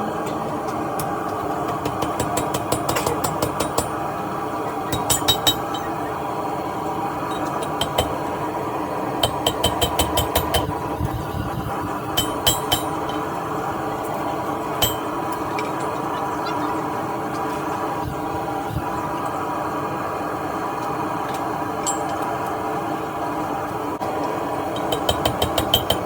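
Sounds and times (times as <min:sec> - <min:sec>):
hammer ringing on steel anvil: 0:04.9 - 0:06.0, 0:12.2 - 0:13.3, 0:14.8 - 0:16.0, 0:21.8 - 0:22.2.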